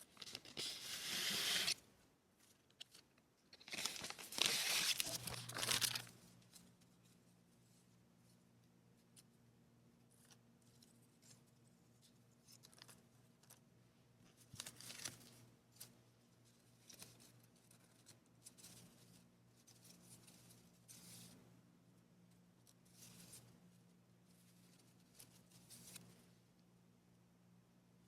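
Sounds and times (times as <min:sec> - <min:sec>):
paper and packaging rustling: 0:00.0 - 0:01.8, 0:02.4 - 0:06.7, 0:14.4 - 0:15.9
low steady hum: 0:01.7 - 0:28.0.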